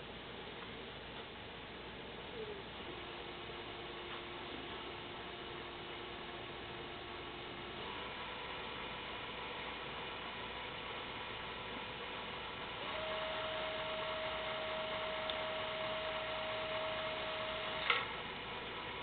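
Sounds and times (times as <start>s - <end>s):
electric motor whine: 12.6s - 18.5s.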